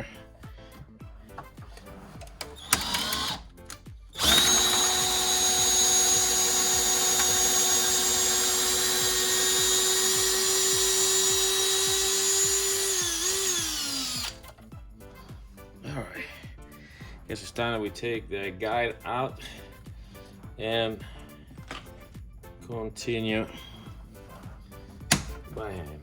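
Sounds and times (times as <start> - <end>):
electric drill whining: 2.4 - 14.6.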